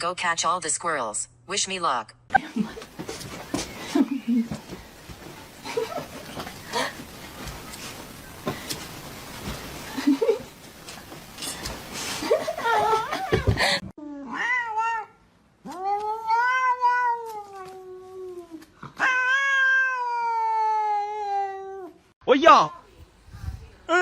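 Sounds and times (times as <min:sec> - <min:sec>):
cat yowling: 0:14.2 - 0:17.8, 0:19.0 - 0:22.0.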